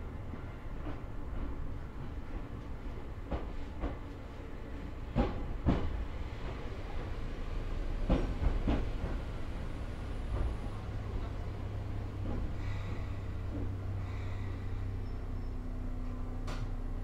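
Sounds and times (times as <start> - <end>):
train running rumble: 0.0 - 17.0
train wheels clacking on rails: 0.1 - 16.8.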